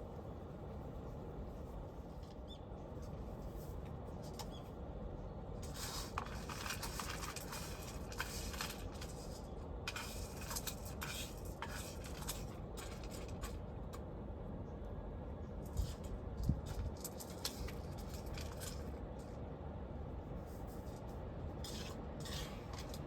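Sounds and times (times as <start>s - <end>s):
low background hum: 0.0s - 23.0s
crinkly rustling: 5.6s - 13.6s, 15.6s - 19.4s.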